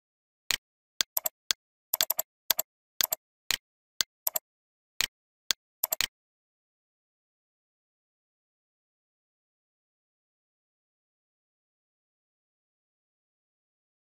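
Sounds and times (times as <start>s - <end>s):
keyboard and mouse clicks: 0.5s - 4.4s, 5.0s - 6.2s.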